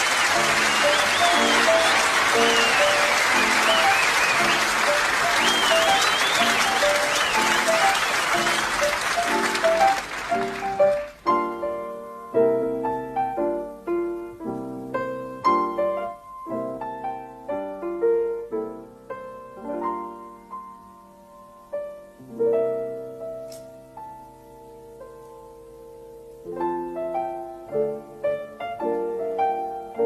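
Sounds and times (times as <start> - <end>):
audience applause: 0.0 - 11.2
piano playing slow chords: 0.0 - 30.0.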